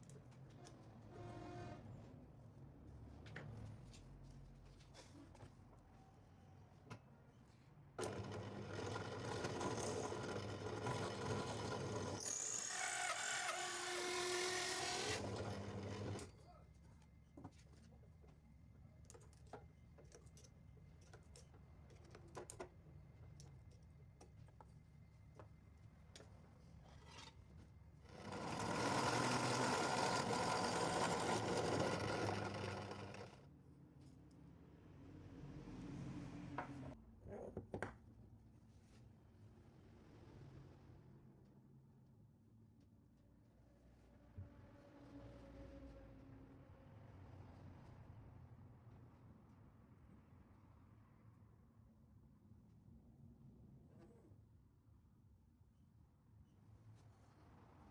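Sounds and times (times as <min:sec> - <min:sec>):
power tool running: 0:08.0 - 0:16.3, 0:28.1 - 0:33.4.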